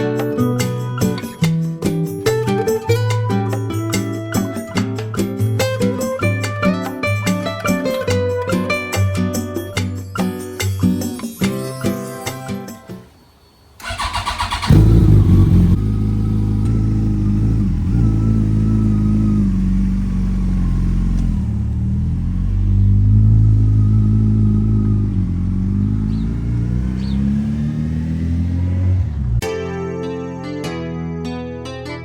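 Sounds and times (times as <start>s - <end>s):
motorcycle starter cranking: 13.8s - 15.8s
motorcycle engine revving: 13.8s - 29.4s.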